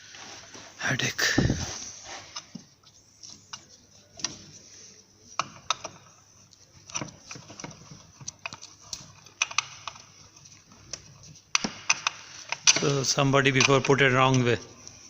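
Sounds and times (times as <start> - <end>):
tools and parts clicking: 5.4 - 14.5.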